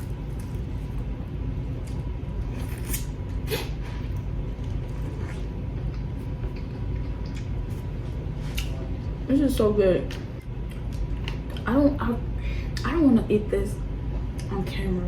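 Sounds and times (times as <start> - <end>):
person eating: 0.0 - 8.8.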